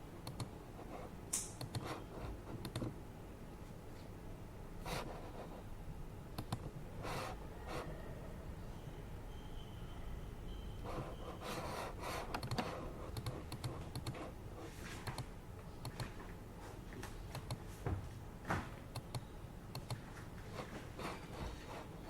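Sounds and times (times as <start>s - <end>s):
air purifier hum: 0.0s - 22.0s
keyboard typing: 0.2s - 0.6s, 1.4s - 3.0s, 6.4s - 7.2s, 10.8s - 14.4s, 15.0s - 16.2s, 17.3s - 17.6s, 18.9s - 21.8s.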